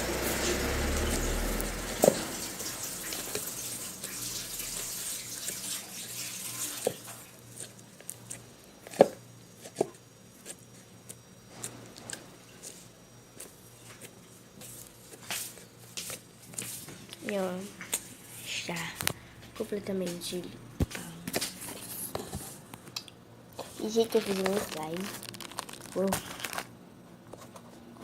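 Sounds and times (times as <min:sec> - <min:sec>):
tap water running into sink: 0:01.8 - 0:07.2.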